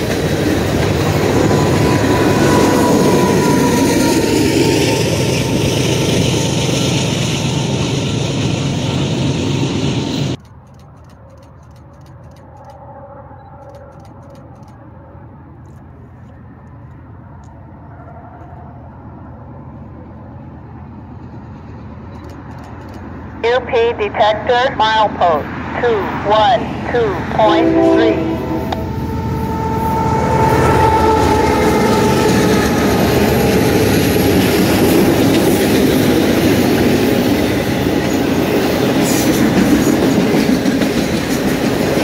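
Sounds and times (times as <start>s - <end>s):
freight train rolling on rails: 0.0s - 23.5s, 24.9s - 42.0s
distant train low rumble: 0.0s - 42.0s.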